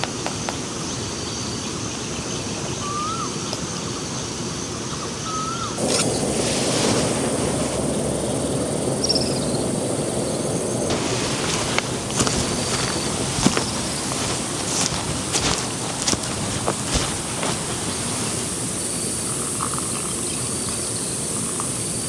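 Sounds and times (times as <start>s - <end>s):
running water rushing: 5.8s - 18.8s
bird chirps: 8.1s - 17.2s.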